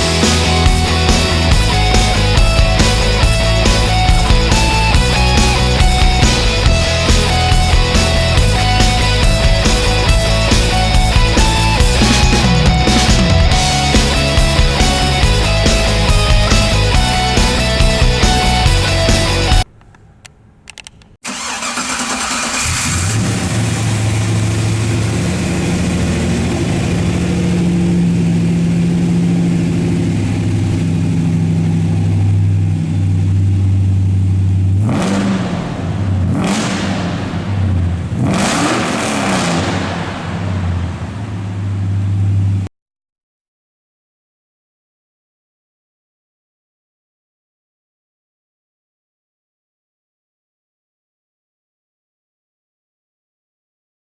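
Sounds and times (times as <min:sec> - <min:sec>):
car engine revving: 0:00.0 - 0:19.7, 0:21.4 - 0:42.7
car engine idling: 0:00.0 - 0:20.7, 0:21.4 - 0:38.2.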